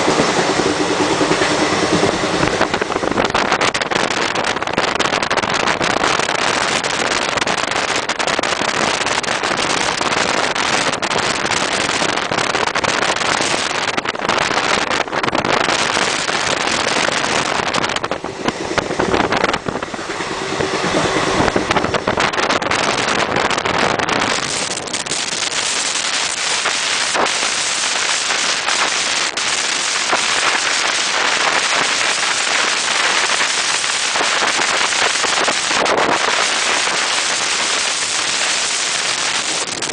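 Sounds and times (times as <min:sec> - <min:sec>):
train running over rails: 0:00.0 - 0:39.9
wind rushing over microphone: 0:00.0 - 0:39.9.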